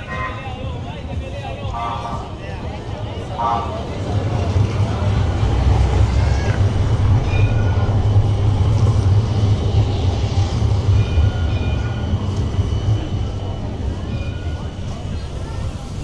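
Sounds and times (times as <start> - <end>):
large vehicle rumbling past: 1.9 - 13.8.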